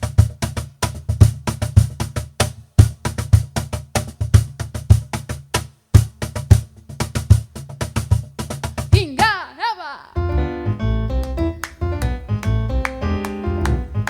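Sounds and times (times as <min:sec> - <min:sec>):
fast percussion rhythm: 0:00.0 - 0:14.0.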